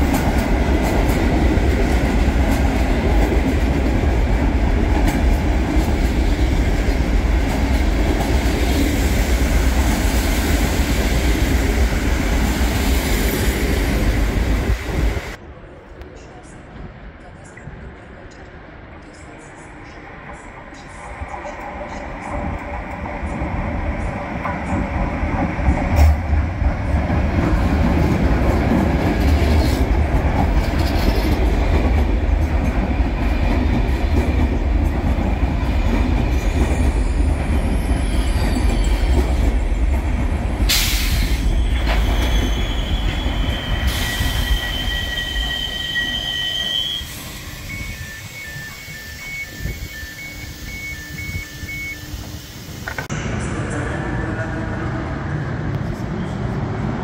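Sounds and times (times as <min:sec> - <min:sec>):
train wheels rumbling on rails: 0:00.0 - 0:15.4, 0:16.4 - 0:57.0
pulsing electronic beep: 0:47.5 - 0:52.1.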